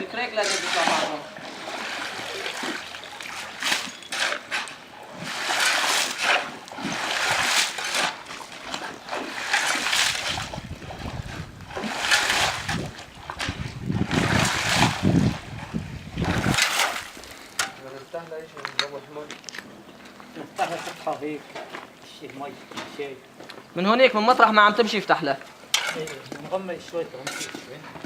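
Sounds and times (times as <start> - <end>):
water and mud splashing: 0.0 - 27.8.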